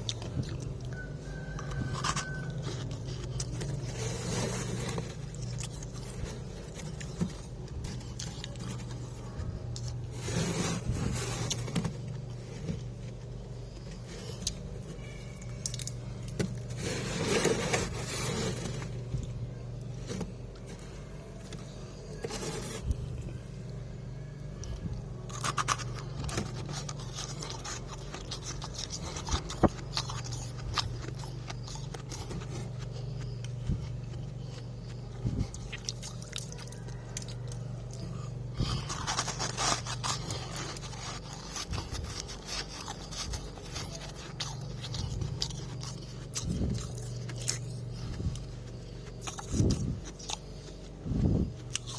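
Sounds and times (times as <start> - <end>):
frost scraping: 0.0 - 23.5, 38.0 - 51.9
freezer low hum: 0.0 - 51.9
ice crunching and chewing: 0.0 - 51.9.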